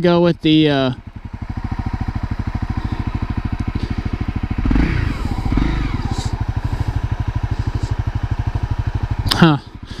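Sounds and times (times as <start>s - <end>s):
motorcycle engine idling and revving: 0.0s - 10.0s.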